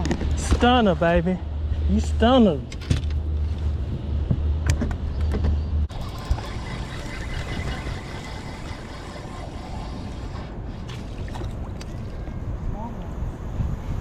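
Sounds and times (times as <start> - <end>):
boat motor running: 5.9 - 12.1
wind on microphone: 5.9 - 14.0.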